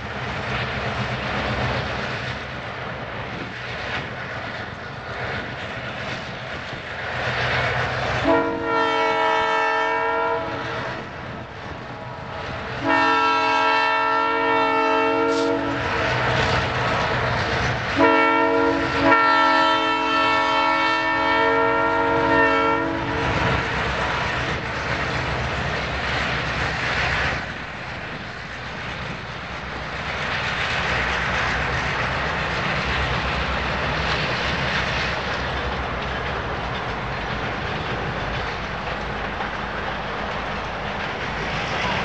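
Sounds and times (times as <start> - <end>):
train rumbling and clattering past: 0.0 - 42.0
locomotive horn chord: 8.2 - 11.0, 12.8 - 16.0, 18.0 - 23.6.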